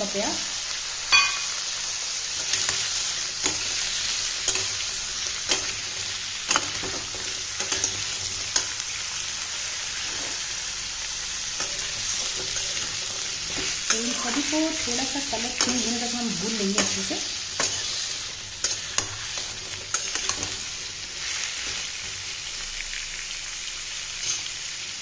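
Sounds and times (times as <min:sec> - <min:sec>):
vegetables sizzling in hot oil: 0:00.0 - 0:25.0
metal spatula scraping a pan: 0:11.5 - 0:22.1.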